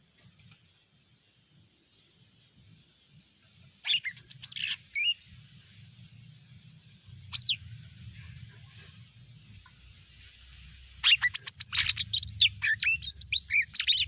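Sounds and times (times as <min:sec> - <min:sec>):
bird calling with high falling notes: 0:11.0 - 0:14.0.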